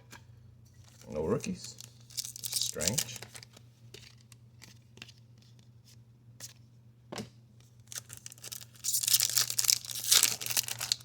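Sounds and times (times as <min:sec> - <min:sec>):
wrapper crackling and tearing: 0:00.9 - 0:04.2, 0:07.9 - 0:11.0.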